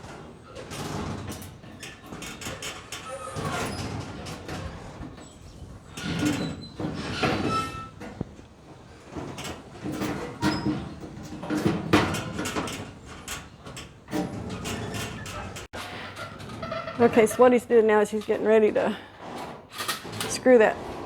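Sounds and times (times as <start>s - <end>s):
ringing squeaks: 1.7s - 8.0s.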